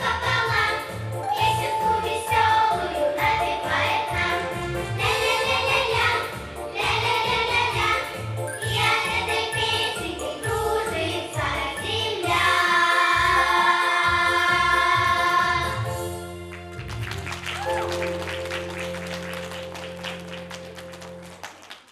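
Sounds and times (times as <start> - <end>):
choir singing with accompaniment: 0.0 - 16.2
people clapping: 16.5 - 21.9.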